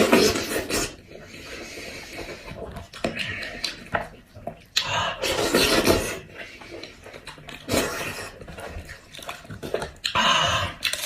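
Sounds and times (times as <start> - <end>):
wet chewing and slurping: 0.0 - 11.0.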